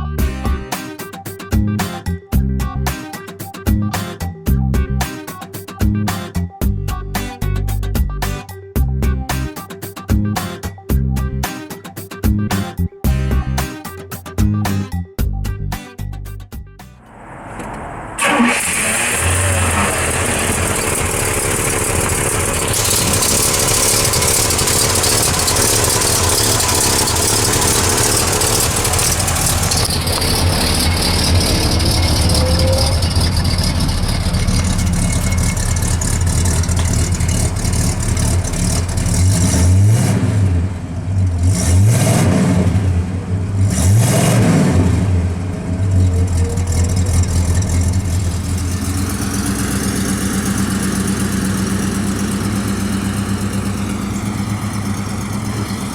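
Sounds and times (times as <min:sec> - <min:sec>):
car engine starting and idling: 0:17.0 - 0:55.9
engine revving: 0:17.0 - 0:55.9.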